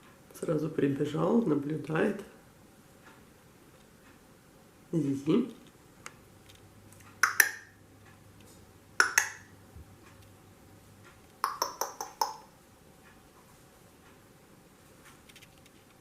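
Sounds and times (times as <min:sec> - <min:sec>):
sharp clinking taps: 0:11.4 - 0:12.5.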